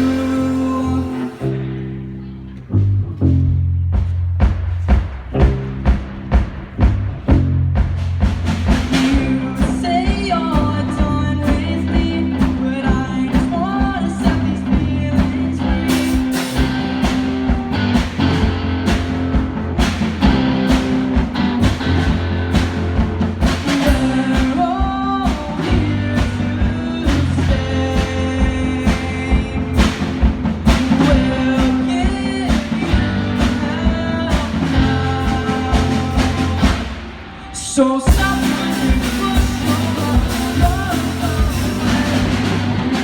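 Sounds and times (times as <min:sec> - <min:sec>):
live rock band playing: 0:00.0 - 0:02.3, 0:04.6 - 0:43.0
person singing: 0:00.0 - 0:02.3, 0:09.0 - 0:18.2, 0:23.6 - 0:43.0.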